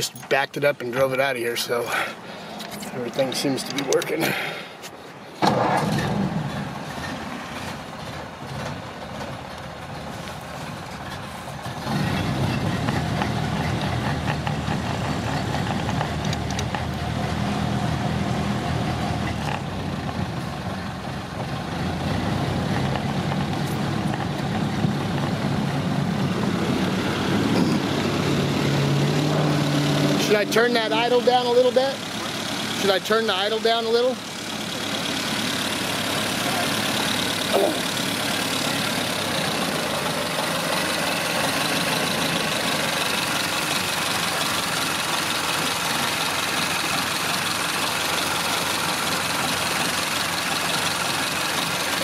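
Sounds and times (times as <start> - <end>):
person speaking: 0.0 - 4.7
car engine running: 0.0 - 52.0.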